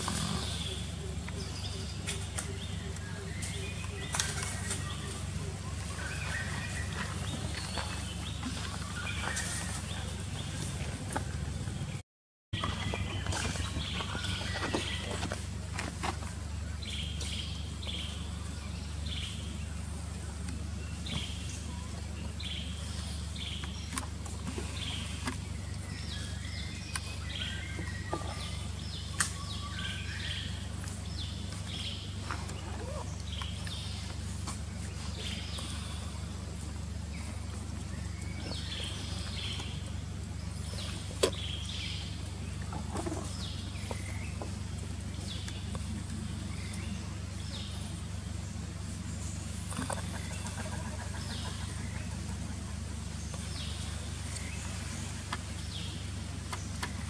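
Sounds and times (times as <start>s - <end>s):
steady low rumble: 0.0s - 12.0s, 12.6s - 57.0s.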